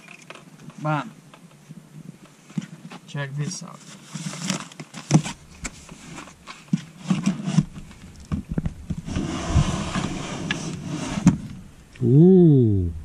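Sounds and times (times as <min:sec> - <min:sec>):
scraping rustle: 0:01.5 - 0:11.6.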